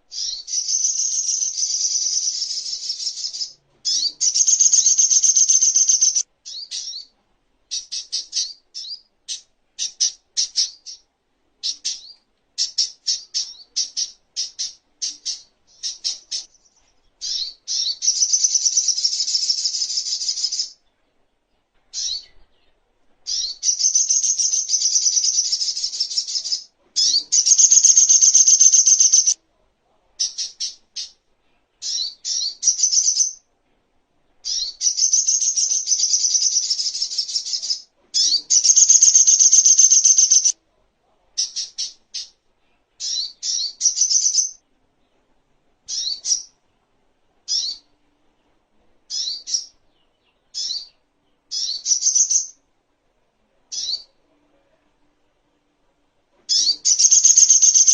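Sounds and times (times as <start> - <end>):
bird trilling and chirping: 0.1 - 7.1, 11.6 - 20.8, 21.9 - 22.4, 23.3 - 29.4, 31.8 - 33.4, 34.4 - 40.6, 43.0 - 44.6, 45.9 - 46.5, 47.5 - 47.8, 49.1 - 49.8, 50.5 - 52.6, 56.5 - 57.9.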